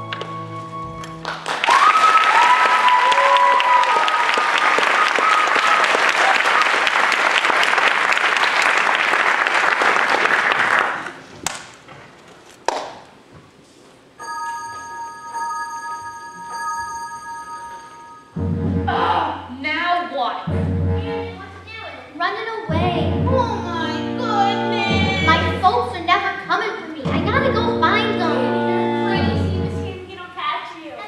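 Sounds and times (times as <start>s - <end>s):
theatre audience applauding: 1.1s - 11.6s
cheers and whistles: 1.6s - 6.7s
sustained musical tones: 14.2s - 19.6s, 20.5s - 21.7s, 22.7s - 30.1s.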